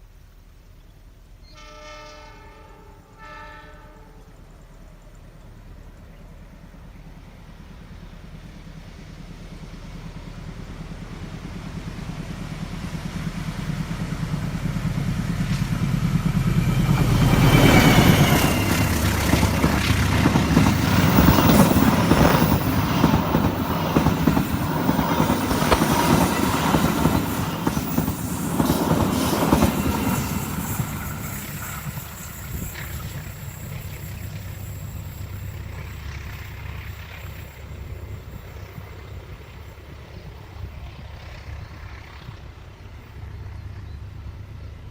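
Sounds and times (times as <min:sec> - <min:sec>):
diesel locomotive engine drone: 0:00.0 - 0:44.9
wheels clacking over rail joints: 0:11.2 - 0:37.6
train wheel squeal: 0:13.7 - 0:44.7.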